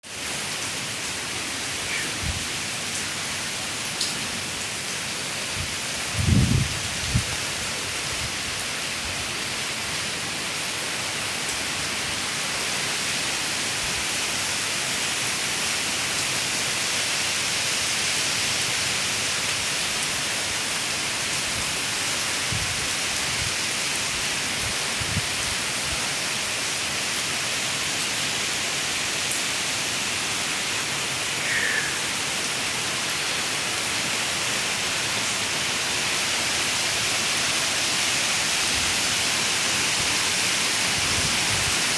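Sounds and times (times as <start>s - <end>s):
steady rain falling: 0.0s - 41.9s
faint chirp: 31.3s - 32.3s.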